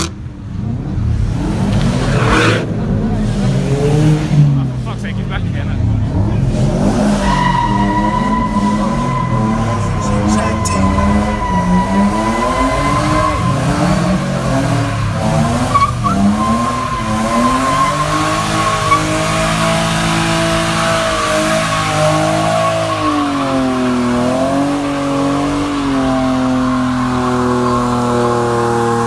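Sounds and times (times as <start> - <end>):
car engine revving high: 0.0 - 29.0
tyres squealing: 6.1 - 29.0.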